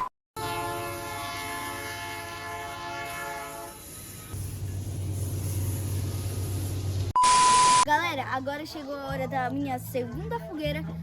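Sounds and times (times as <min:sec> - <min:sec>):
train horn blowing: 0:00.4 - 0:04.4
passing train rumble: 0:00.4 - 0:07.1.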